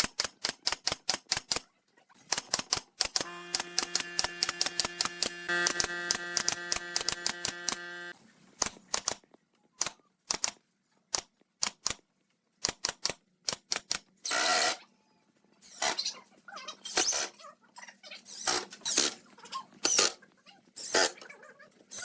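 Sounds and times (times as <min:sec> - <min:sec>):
sharp clicks and taps: 0:02.3 - 0:07.9
motor-like hum: 0:03.2 - 0:08.2.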